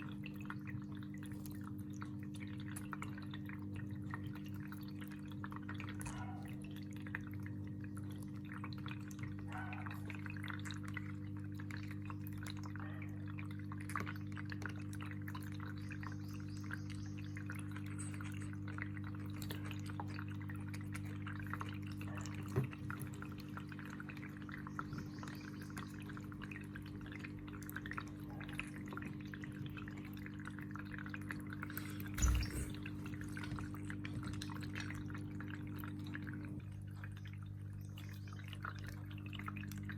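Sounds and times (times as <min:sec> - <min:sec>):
water pouring and dripping: 0:16.8 - 0:37.9
small splashes: 0:31.5 - 0:35.0.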